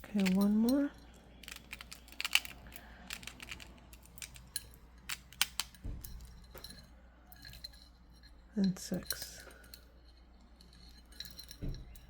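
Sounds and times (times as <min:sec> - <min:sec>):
stone beads clicking together: 0:00.0 - 0:05.8.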